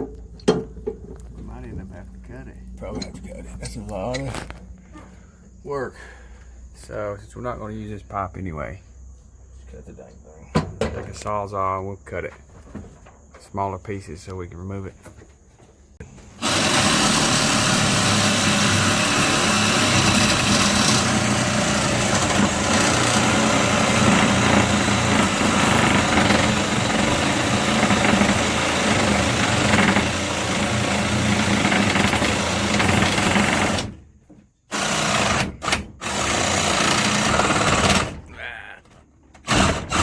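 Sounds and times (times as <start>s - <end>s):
reciprocating saw cutting steel pipe: 16.4s - 31.7s.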